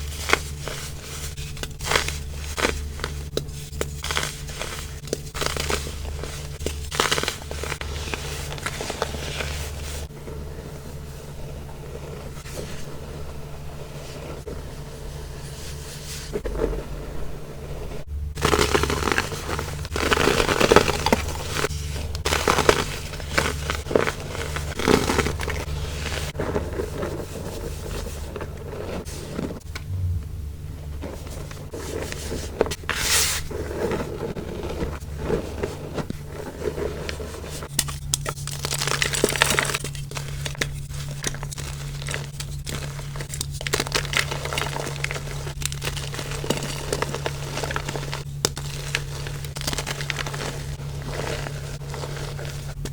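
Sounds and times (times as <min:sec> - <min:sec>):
baking soda crunching: 0:00.0 - 0:10.1, 0:18.4 - 0:29.6, 0:31.0 - 0:52.9
low hum: 0:29.5 - 0:32.7.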